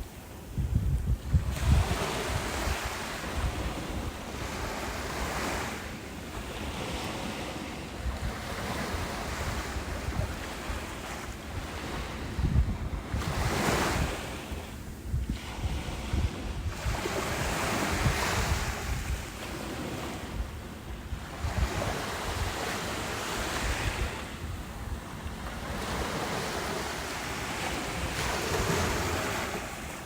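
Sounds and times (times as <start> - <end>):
wind buffeting microphone: 0.0 - 5.8, 6.5 - 30.0
ocean surf breaking: 21.2 - 30.0.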